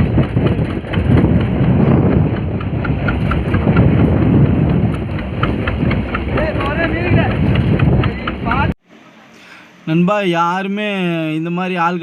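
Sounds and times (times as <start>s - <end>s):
fast regular ticking: 0.0s - 8.7s
boat engine running: 0.0s - 8.8s.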